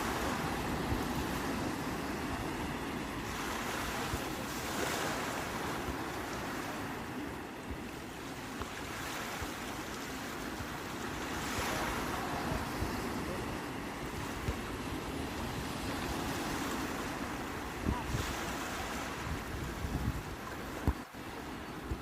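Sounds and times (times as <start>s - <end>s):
sea waves breaking on shore: 0.0s - 22.0s
wind rumble on microphone: 10.5s - 22.0s.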